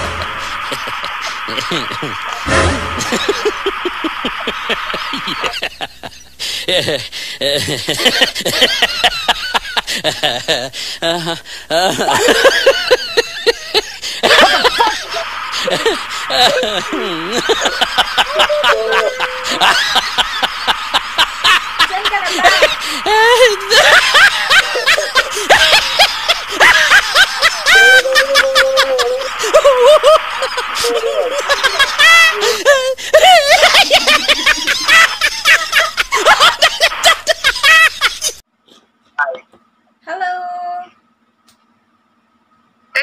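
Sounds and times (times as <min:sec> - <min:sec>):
high-pitched giggling: 0:15.8 - 0:20.5, 0:21.9 - 0:38.4
people speaking and exclaiming: 0:18.2 - 0:20.2, 0:27.5 - 0:32.4.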